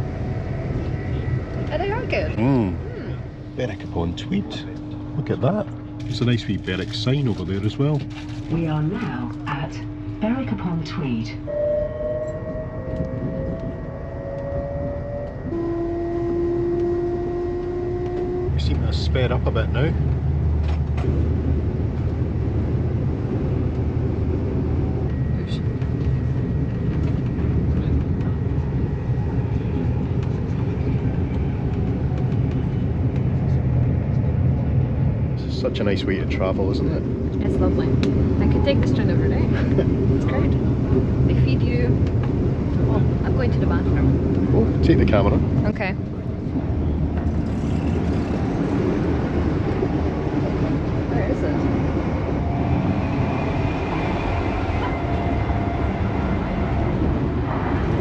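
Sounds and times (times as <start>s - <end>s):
faint steady whine: 0.0s - 39.5s
train rumble inside carriage: 0.0s - 58.0s.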